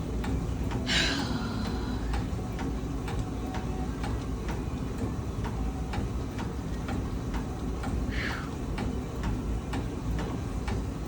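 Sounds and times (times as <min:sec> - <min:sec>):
exercise bike clicking: 0:00.0 - 0:11.0.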